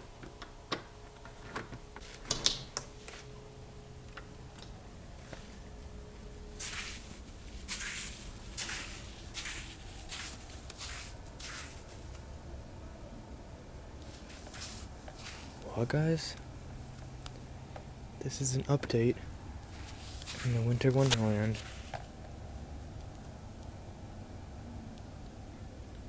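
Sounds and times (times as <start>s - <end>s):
footsteps crunching in snow: 5.2s - 12.2s, 14.0s - 15.8s, 19.6s - 22.0s.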